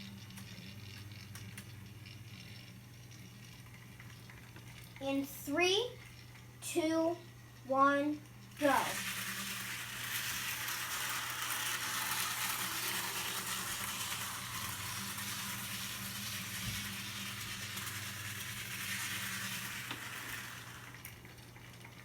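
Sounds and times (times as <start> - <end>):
low motor hum: 0.0 - 22.0
model train wheels hissing on rail: 8.6 - 21.2.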